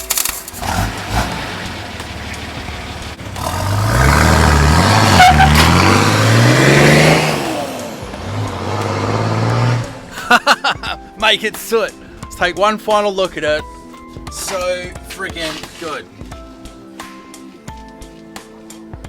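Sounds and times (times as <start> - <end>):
car engine accelerating hard: 0.5 - 10.2.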